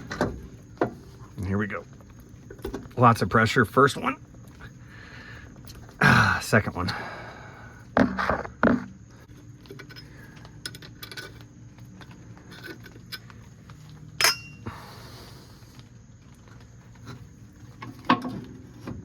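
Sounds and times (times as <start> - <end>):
metal tools clinking: 9.6 - 11.5, 12.4 - 13.4, 14.1 - 14.6.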